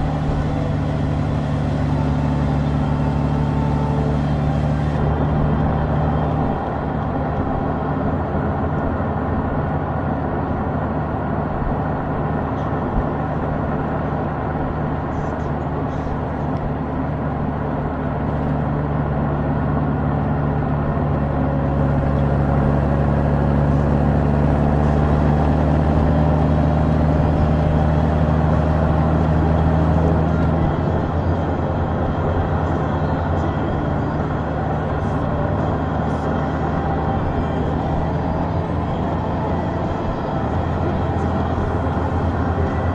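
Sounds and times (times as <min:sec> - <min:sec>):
motorcycle engine running: 0:00.0 - 0:09.7, 0:12.5 - 0:42.9
road and wind noise: 0:00.0 - 0:42.9.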